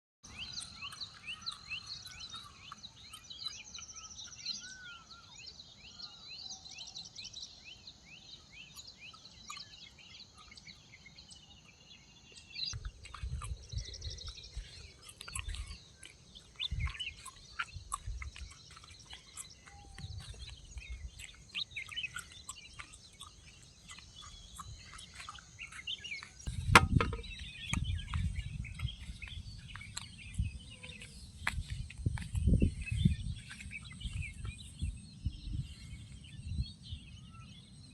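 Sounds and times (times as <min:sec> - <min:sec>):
songbirds chirping and singing: 0:00.2 - 0:37.9
sharp knock: 0:26.8 - 0:27.3.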